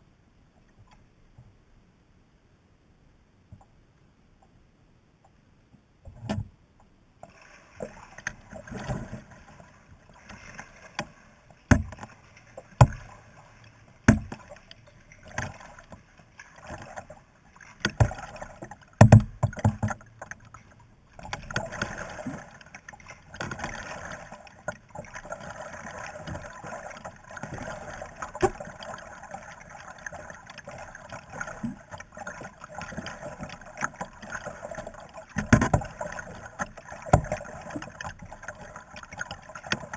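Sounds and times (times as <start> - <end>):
paddle strokes splashing water: 7.2 - 39.9
sharp knocks: 14.1 - 14.4, 19.0 - 20.0.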